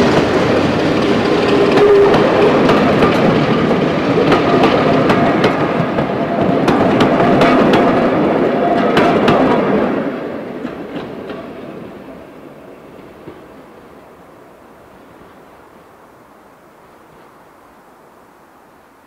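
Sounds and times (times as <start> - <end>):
train wheels clicking over rail joints: 0.0 - 14.0.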